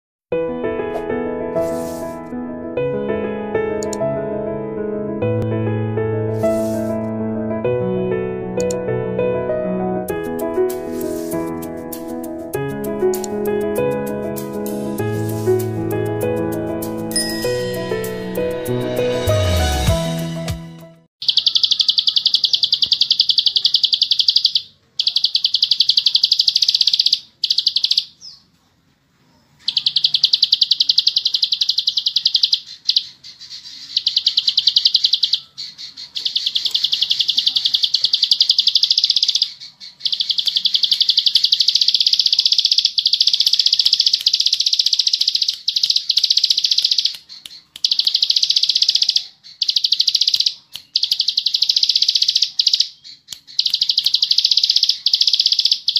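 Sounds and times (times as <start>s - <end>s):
bird singing fast clicking trills: 13.1s - 13.4s, 21.2s - 28.4s, 29.6s - 55.9s.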